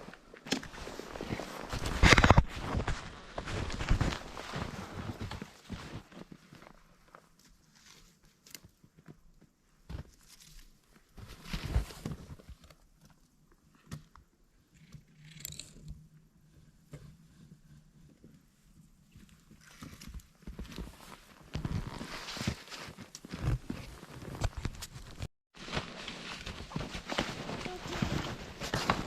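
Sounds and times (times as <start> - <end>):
snowshoe footsteps crunching snow: 0.0 - 8.1, 19.6 - 29.0.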